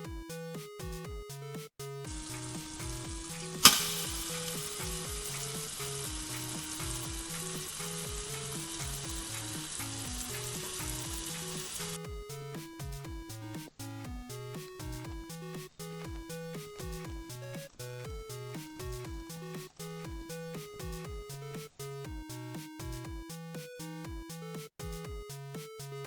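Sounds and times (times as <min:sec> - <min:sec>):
background music: 0:00.0 - 0:26.0
fish sizzling in microwave: 0:02.1 - 0:12.0.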